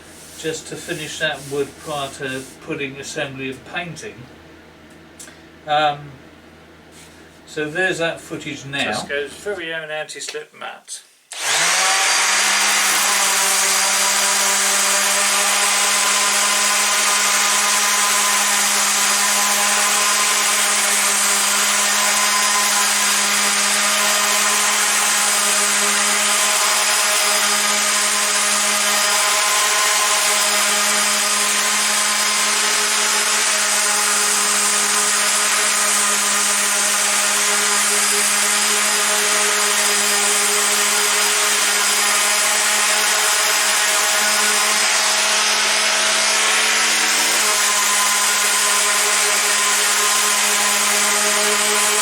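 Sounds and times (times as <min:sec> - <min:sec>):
sander motor hum: 0:00.0 - 0:02.6, 0:11.3 - 0:52.0
sandpaper hissing on wood: 0:00.0 - 0:02.6.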